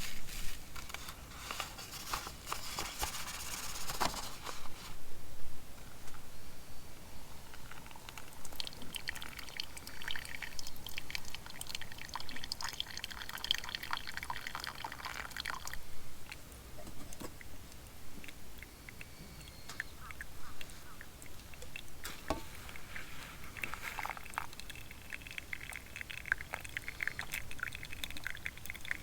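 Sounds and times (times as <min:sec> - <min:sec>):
liquid pouring and splashing: 0:21.3 - 0:29.0.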